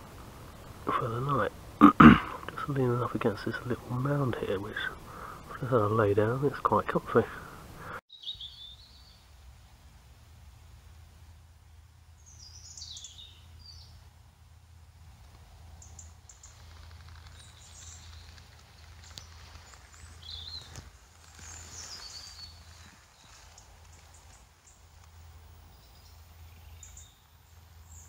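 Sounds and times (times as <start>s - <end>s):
small birds chirping: 0.0s - 9.4s, 12.1s - 14.2s, 15.2s - 28.0s
low background hum: 8.6s - 28.0s
faint clicks: 15.2s - 21.6s.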